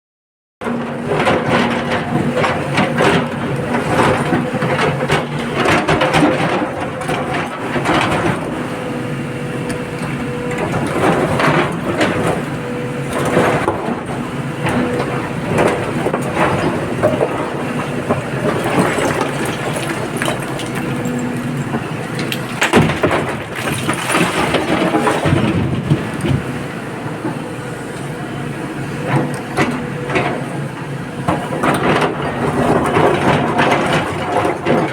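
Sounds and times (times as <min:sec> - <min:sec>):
excavator diesel engine running: 0:00.6 - 0:34.9
rock crashing into truck: 0:22.2 - 0:26.0.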